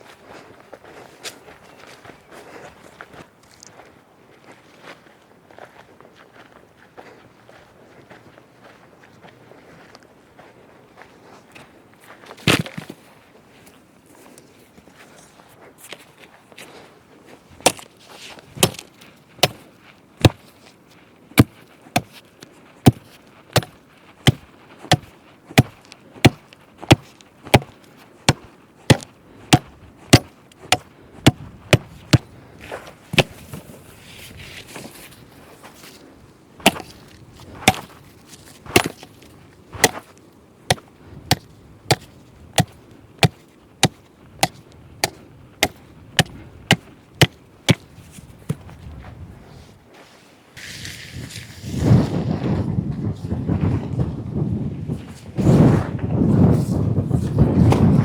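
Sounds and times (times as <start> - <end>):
wood chopping blows: 18.6 - 20.5, 21.4 - 22.2, 22.8 - 32.4, 33.1 - 33.6, 36.6 - 38.0, 38.7 - 40.1, 40.7 - 47.9.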